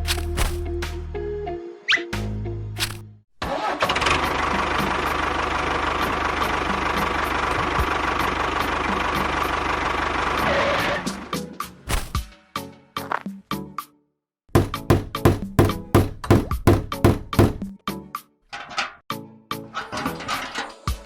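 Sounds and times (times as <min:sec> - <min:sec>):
small engine running: 0:03.5 - 0:11.0.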